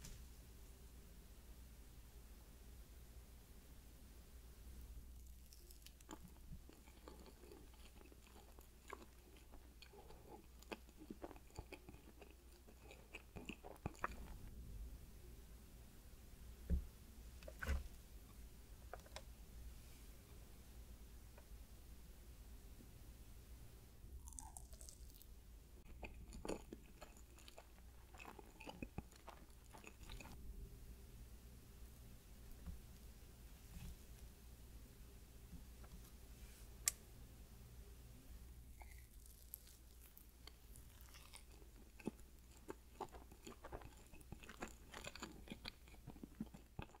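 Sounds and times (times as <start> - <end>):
quiet chewing with wet mouth clicks: 5.2 - 14.4, 25.8 - 30.4, 38.8 - 47.0.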